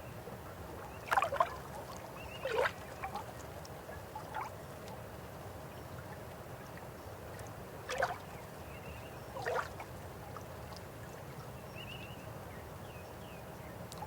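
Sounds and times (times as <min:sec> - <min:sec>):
splashing gurgles: 0:01.1 - 0:03.3.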